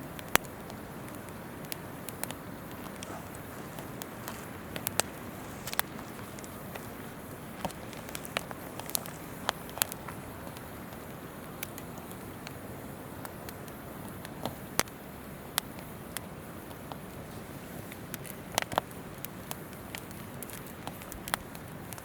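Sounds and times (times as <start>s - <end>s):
campfire crackling and popping: 0.0s - 22.0s
river flowing: 0.9s - 11.2s.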